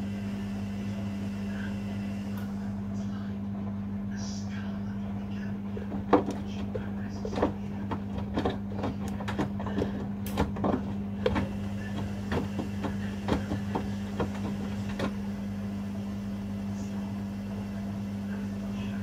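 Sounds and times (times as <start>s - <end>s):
washing machine drum tumbling: 5.2s - 15.8s
knocks and clicks: 5.7s - 15.2s.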